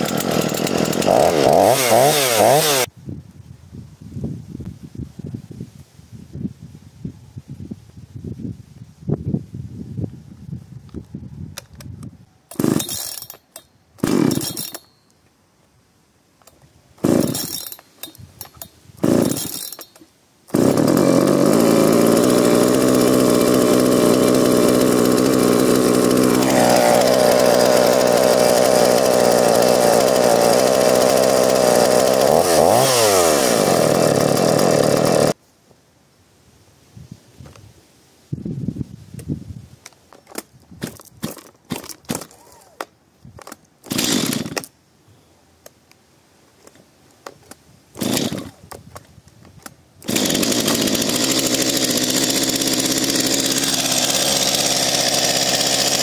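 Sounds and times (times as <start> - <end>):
chainsaw engine running: 0.0 - 2.9, 12.5 - 13.3, 14.0 - 14.8, 17.0 - 35.4, 43.9 - 44.6, 48.0 - 48.6, 50.0 - 56.0
chainsaw pull-start bursts: 0.0 - 2.9, 12.5 - 14.9, 17.0 - 35.4, 40.8 - 42.8, 43.8 - 44.7, 48.0 - 48.7, 50.0 - 56.0.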